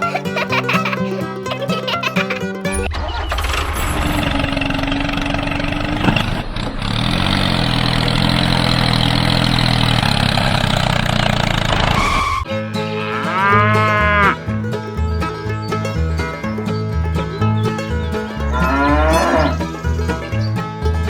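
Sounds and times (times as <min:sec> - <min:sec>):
music: 0:00.0 - 0:02.9, 0:12.5 - 0:21.0
tractor engine running: 0:00.0 - 0:12.5, 0:13.4 - 0:21.0.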